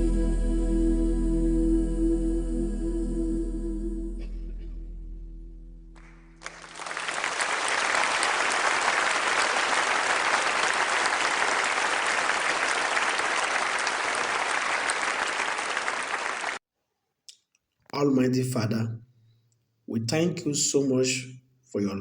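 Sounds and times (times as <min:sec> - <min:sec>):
crowd applauding: 0:06.4 - 0:16.6.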